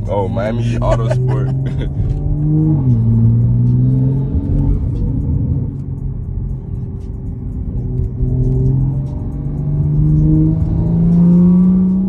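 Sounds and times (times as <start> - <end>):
car engine revving in cabin: 0.0 - 12.0.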